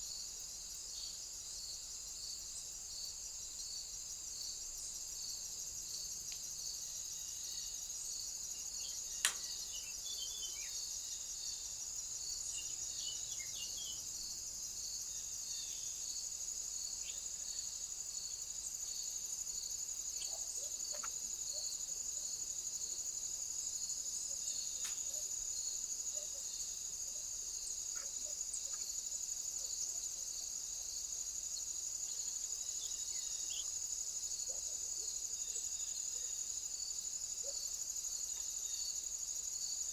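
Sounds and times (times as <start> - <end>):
crickets and insects chirping: 0.0 - 39.9
sharp click: 9.2 - 9.5.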